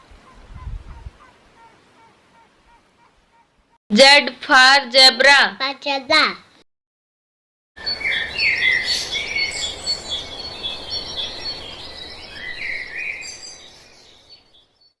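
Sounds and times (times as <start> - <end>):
steady outdoor hiss: 0.0 - 6.5, 7.8 - 14.6
birds chirping and singing: 7.8 - 14.9.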